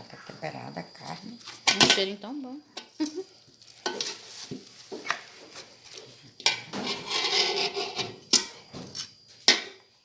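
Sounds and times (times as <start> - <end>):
spoon scraping a pot: 3.7 - 9.8.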